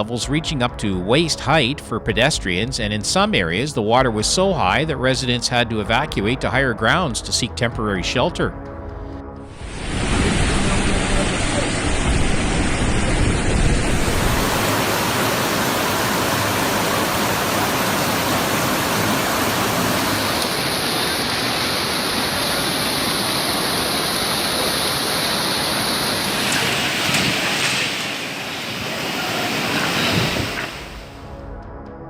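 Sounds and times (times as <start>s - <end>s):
floodwater rushing: 9.5s - 31.2s.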